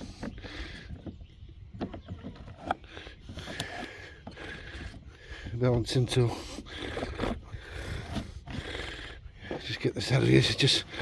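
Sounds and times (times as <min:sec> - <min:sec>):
light knocks and scraping: 0:00.0 - 0:08.8.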